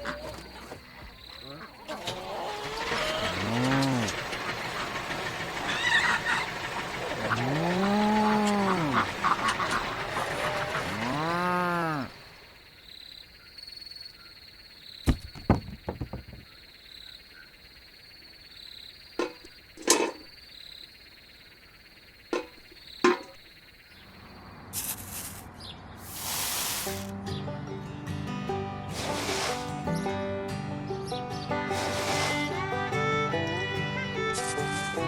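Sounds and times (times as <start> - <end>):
animal call rising and falling: 1.4 - 4.6, 5.6 - 12.2
sharp knocks: 15.1 - 16.5, 22.4 - 23.4.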